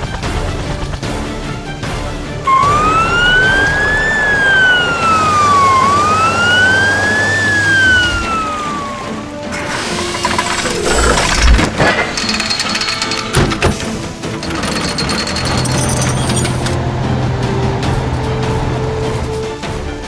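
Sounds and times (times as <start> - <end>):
background music: 0.0 - 20.0
police siren wailing: 2.5 - 11.5.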